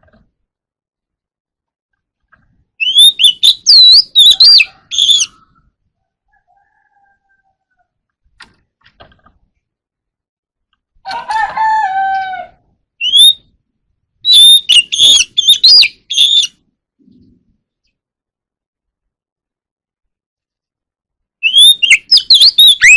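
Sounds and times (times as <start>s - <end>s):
bird whistling song: 2.8s - 5.4s, 13.0s - 13.5s, 14.2s - 16.6s, 21.4s - 22.9s.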